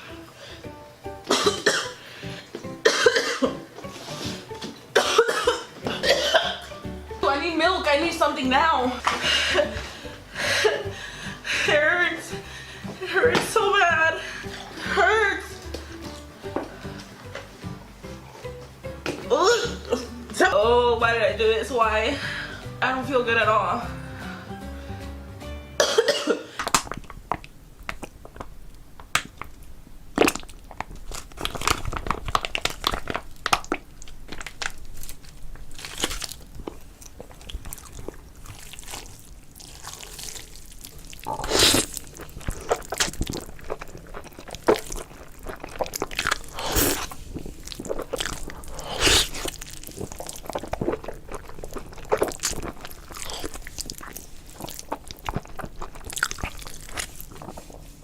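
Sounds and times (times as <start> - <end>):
wet mouth clicks and smacks: 26.6 - 29.6
person chewing noodles: 26.6 - 58.0.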